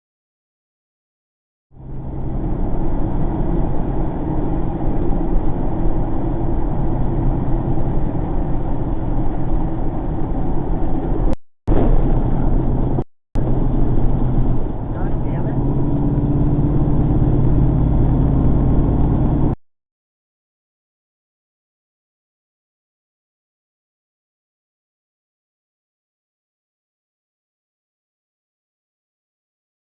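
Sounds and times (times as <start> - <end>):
vehicle engine and road noise: 1.7 - 19.6.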